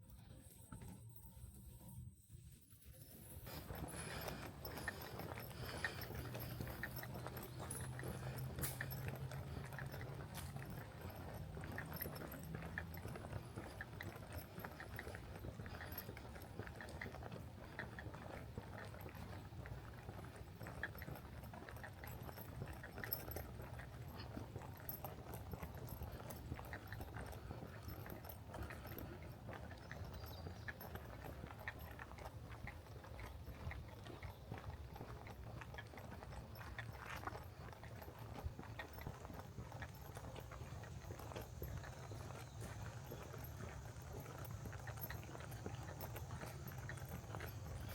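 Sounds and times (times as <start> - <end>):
steady low hum: 0.4 - 16.5
footsteps on trail: 2.6 - 47.9.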